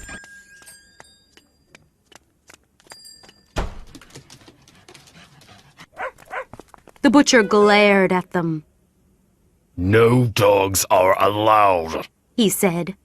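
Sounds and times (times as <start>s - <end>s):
light clicks with bell-like dings: 2.9s - 3.6s.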